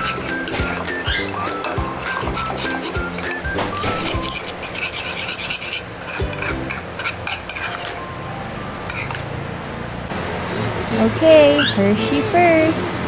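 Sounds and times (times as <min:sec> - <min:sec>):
spoon stirring in a cup: 0:00.0 - 0:08.0.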